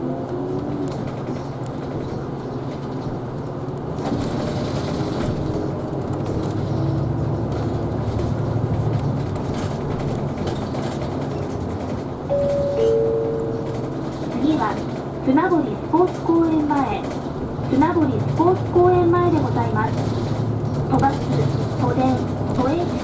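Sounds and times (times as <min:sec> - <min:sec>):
bus engine and road noise: 0:00.0 - 0:23.0
descending two-note chime: 0:12.3 - 0:13.9.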